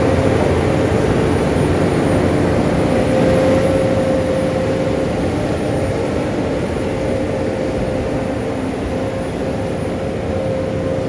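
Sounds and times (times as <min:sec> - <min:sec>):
steady engine whine: 0:00.0 - 0:11.0.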